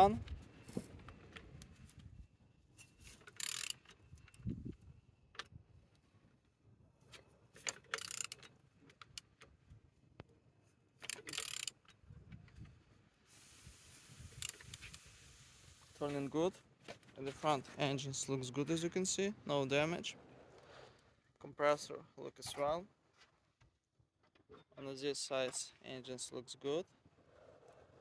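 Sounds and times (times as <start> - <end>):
metallic clicks and clinks: 3.2 - 4.4, 7.6 - 8.5, 11.0 - 12.0.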